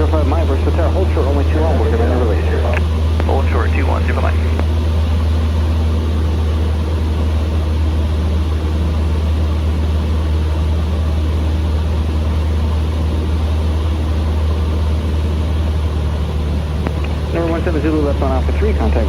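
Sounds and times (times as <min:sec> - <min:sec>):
light aircraft engine droning: 0:00.0 - 0:19.0.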